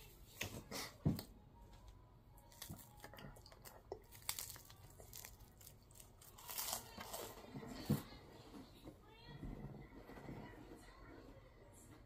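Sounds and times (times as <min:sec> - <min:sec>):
person chewing: 0:02.4 - 0:07.4.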